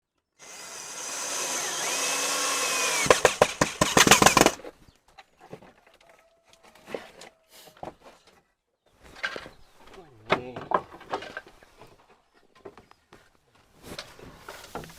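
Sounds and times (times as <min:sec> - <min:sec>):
small power tool running: 0:00.4 - 0:04.6
sharp knocks and clatter: 0:03.0 - 0:04.6.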